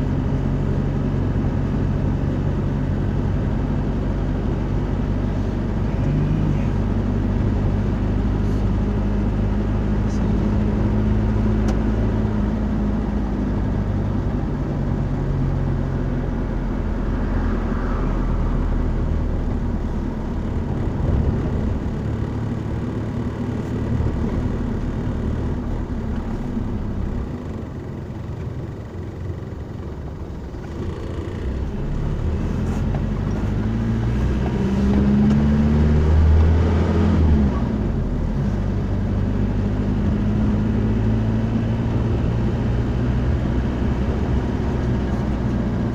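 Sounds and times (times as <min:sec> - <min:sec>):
car engine: 0:00.0 - 0:45.9
road noise: 0:00.0 - 0:45.9.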